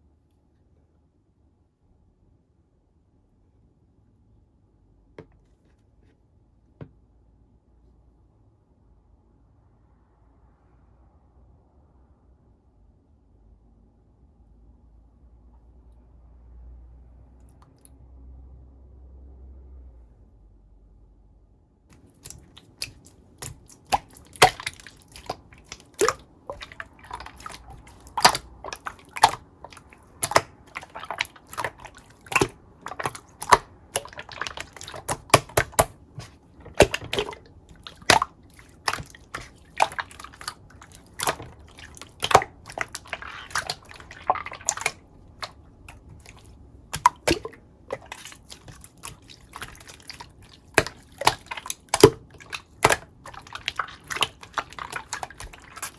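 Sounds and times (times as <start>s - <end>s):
slime squelching: 21.9s - 55.9s
slime popping and clicking: 22.1s - 45.0s.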